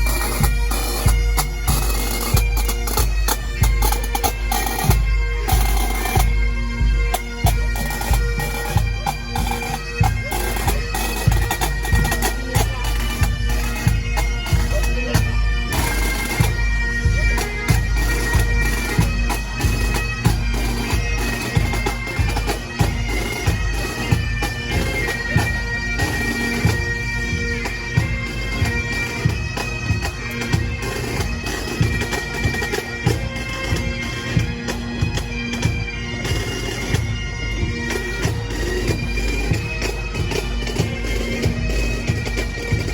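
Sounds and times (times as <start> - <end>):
bagpipe melody with drones: 0.0 - 42.9
drum beats: 36.9 - 42.9.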